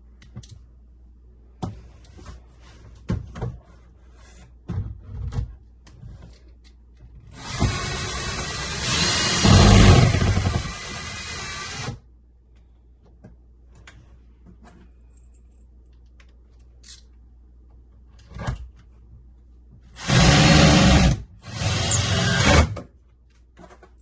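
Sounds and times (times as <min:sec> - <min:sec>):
power tool running: 0:07.4 - 0:12.0, 0:20.0 - 0:22.8.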